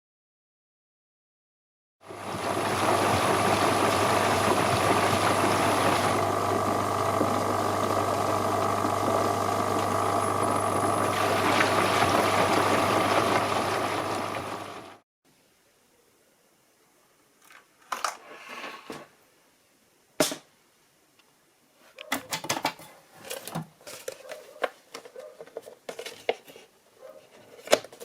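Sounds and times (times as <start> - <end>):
washing machine pump growling: 2.0 - 15.0.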